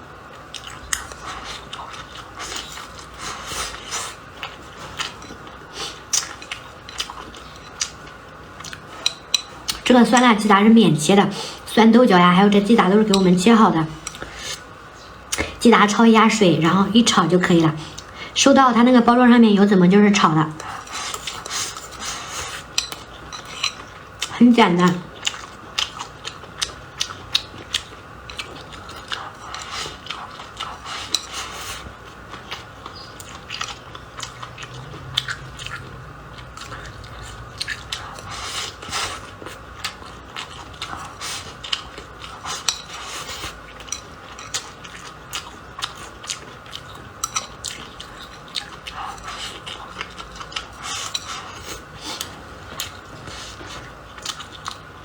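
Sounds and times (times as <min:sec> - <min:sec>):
chewing and biting food: 0:00.3 - 0:10.3, 0:25.1 - 0:55.0
utensils clicking against a bowl: 0:22.7 - 0:23.9, 0:42.4 - 0:44.7, 0:47.2 - 0:51.5.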